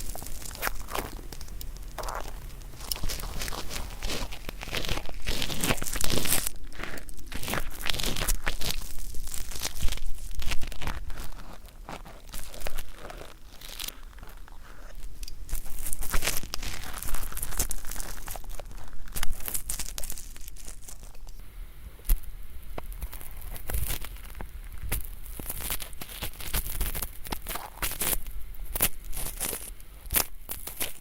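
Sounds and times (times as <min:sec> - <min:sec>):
ear-cleaning tool scraping earwax: 0:00.0 - 0:21.4.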